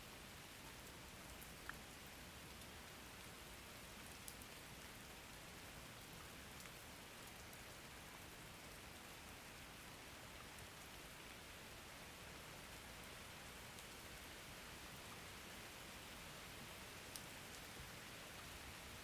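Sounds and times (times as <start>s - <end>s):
raindrop ticks: 6.6s - 7.5s, 17.1s - 17.7s.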